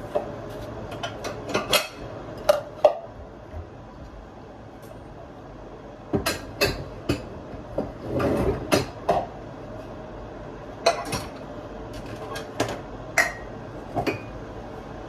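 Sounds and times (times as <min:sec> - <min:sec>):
dishes and utensils clattering: 0:00.9 - 0:03.1, 0:06.2 - 0:09.3, 0:10.8 - 0:11.4, 0:12.0 - 0:14.3.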